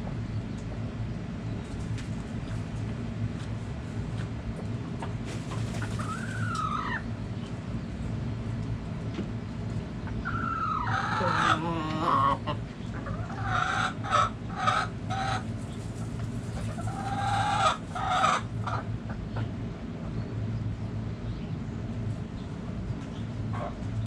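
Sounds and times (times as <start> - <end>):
chickens clucking: 4.2 - 7.6, 10.0 - 20.4, 22.9 - 24.0
chickens calling: 4.2 - 7.7, 9.6 - 20.8, 22.2 - 24.0.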